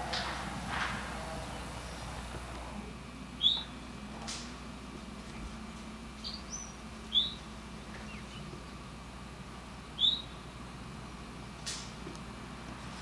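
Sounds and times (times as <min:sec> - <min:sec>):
low hum: 0:00.0 - 0:13.0
steady hiss: 0:00.0 - 0:13.0
short high bird chirps: 0:10.0 - 0:10.4.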